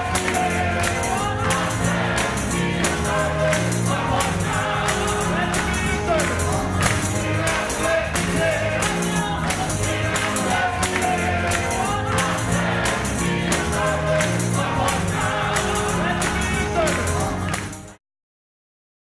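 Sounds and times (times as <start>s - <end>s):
bass line: 0.0s - 17.9s
tambourine beat: 0.0s - 18.0s
voices singing gospel: 0.0s - 18.0s.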